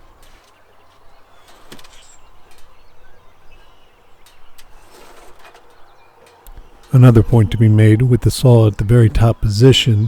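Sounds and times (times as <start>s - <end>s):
birds chirping faintly: 0.0s - 10.0s
low steady hum: 6.5s - 10.0s.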